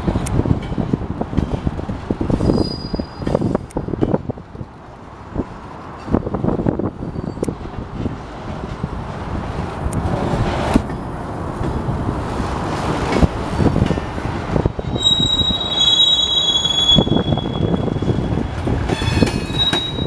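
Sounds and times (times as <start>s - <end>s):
freight train wheels rumbling: 0.0s - 20.0s
high wheel squeal: 2.4s - 3.5s, 7.0s - 7.4s, 14.9s - 20.0s.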